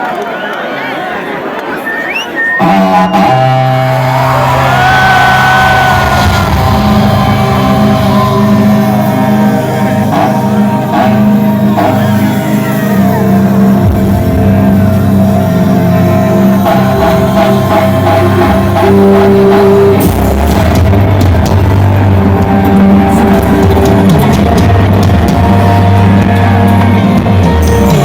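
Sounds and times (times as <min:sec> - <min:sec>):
live band music: 0:02.6 - 0:28.0
people shouting: 0:02.6 - 0:28.0.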